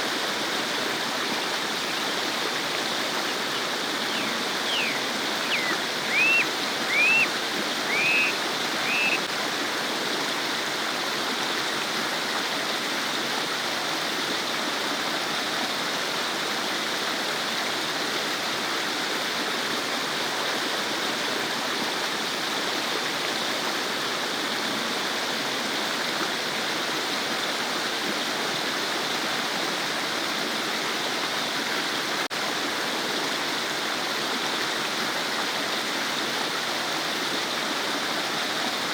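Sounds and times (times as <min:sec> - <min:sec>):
babbling stream: 0:00.0 - 0:38.9
bird chirping: 0:03.5 - 0:09.2.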